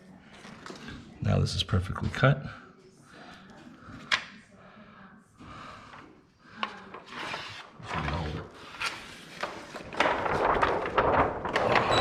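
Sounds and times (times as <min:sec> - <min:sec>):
plastic film crinkling: 0:08.6 - 0:12.0.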